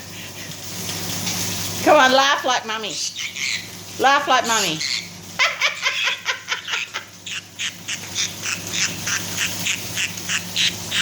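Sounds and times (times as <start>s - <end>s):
parrot imitating laughter: 4.4s - 11.0s.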